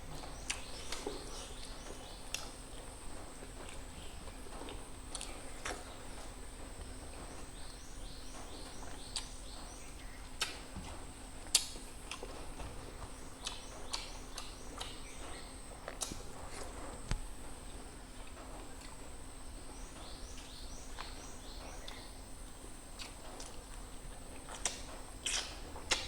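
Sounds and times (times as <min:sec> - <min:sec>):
bird chirping: 0:00.0 - 0:03.2, 0:07.2 - 0:10.6, 0:13.2 - 0:15.7, 0:19.3 - 0:22.3.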